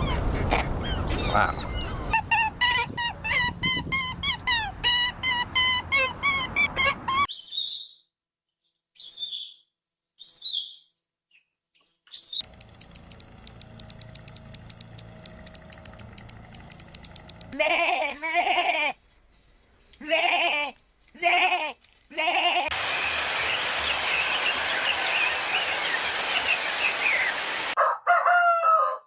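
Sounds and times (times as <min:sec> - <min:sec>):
birds chirping: 0:00.0 - 0:02.6, 0:10.3 - 0:17.6, 0:22.7 - 0:27.7
fast dry clicking: 0:12.4 - 0:17.6.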